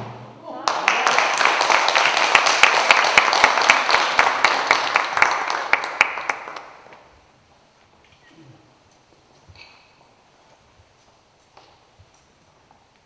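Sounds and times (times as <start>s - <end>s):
audience applause: 0.5s - 7.0s.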